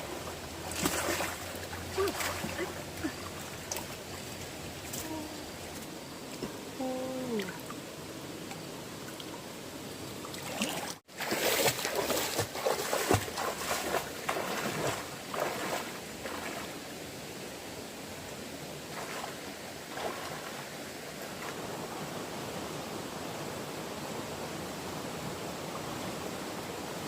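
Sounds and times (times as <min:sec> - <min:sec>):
water splashing and sloshing: 0:00.0 - 0:17.2, 0:18.2 - 0:22.6
stream water rushing: 0:00.0 - 0:27.0.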